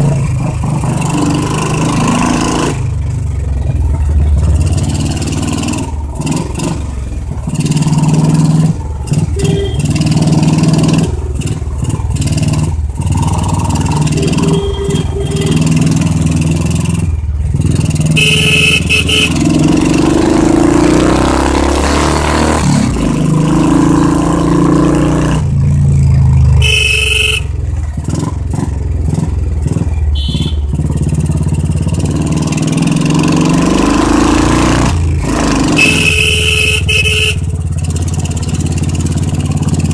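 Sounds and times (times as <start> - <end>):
motorcycle exhaust revving: 0.0 - 39.9
motorcycle horn toots: 9.2 - 10.1, 14.0 - 15.9, 18.1 - 19.7, 26.6 - 27.6, 30.1 - 30.9, 35.7 - 37.6.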